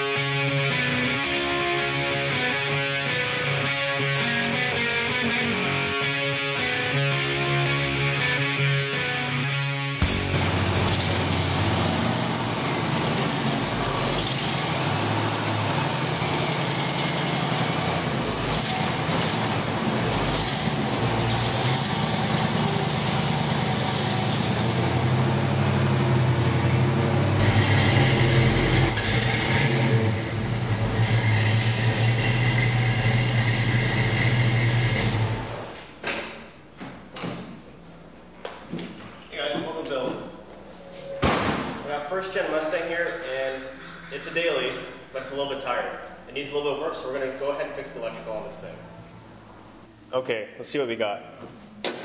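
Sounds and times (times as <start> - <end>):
car engine idling: 10.0 - 35.7.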